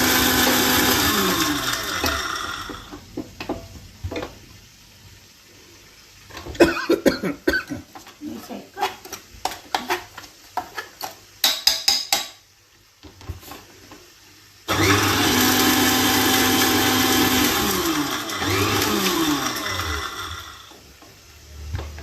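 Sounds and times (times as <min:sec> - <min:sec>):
mixer-grinder grinding spices: 0:00.0 - 0:03.0, 0:14.7 - 0:20.9.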